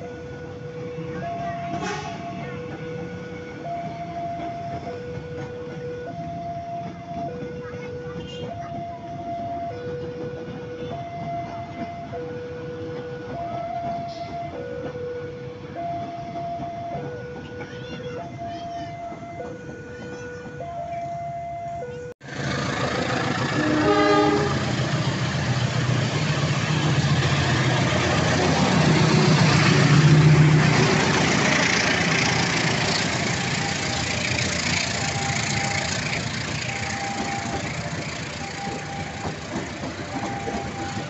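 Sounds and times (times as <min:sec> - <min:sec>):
train wheels rumbling on rail: 0:00.0 - 0:41.0
locomotive horn blast: 0:01.6 - 0:02.5, 0:22.5 - 0:25.3.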